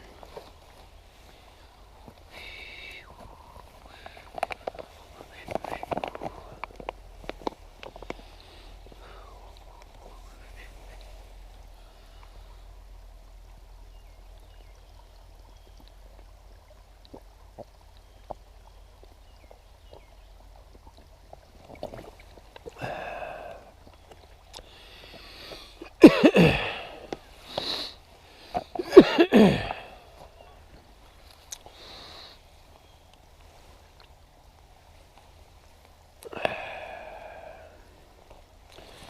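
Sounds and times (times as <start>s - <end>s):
faint ticks: 0.2s - 25.9s
person breathing: 1.2s - 6.6s, 8.1s - 11.0s, 22.8s - 23.8s, 24.6s - 25.8s, 31.7s - 32.4s, 36.3s - 38.0s.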